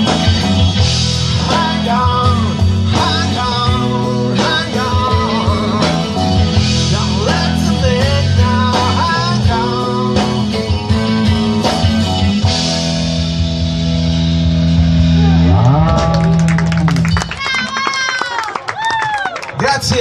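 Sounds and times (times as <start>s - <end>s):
electric guitar lead: 0.0s - 18.4s
bass and drums: 0.0s - 20.0s.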